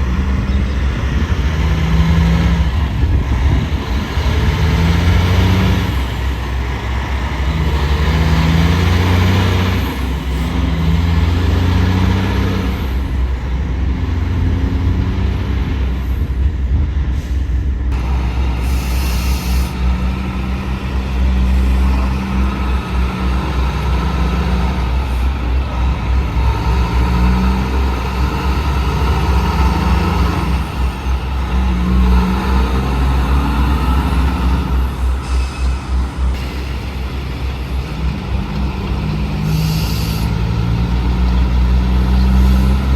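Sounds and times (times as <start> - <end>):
diesel truck engines running: 0.0 - 42.9
air brake hiss: 18.4 - 20.0, 34.9 - 37.2, 39.4 - 40.4.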